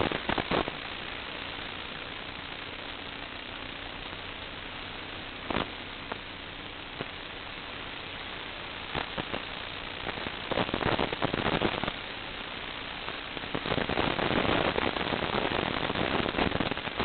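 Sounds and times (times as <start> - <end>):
radio static hiss: 0.0 - 17.0
static crackle: 0.0 - 17.0.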